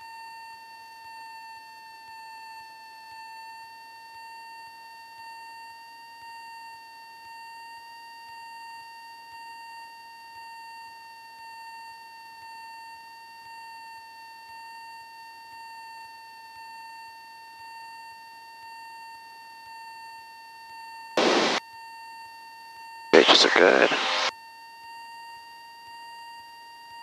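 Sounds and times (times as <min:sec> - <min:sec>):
electronic whine: 0:21.2 - 0:21.6, 0:23.2 - 0:24.3
faint hiss: 0:21.2 - 0:21.6, 0:23.2 - 0:24.3.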